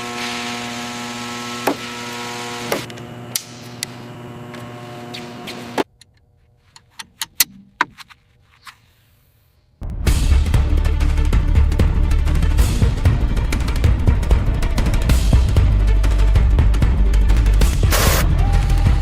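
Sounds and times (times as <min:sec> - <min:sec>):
machine hum with hiss: 0:17.7 - 0:18.2.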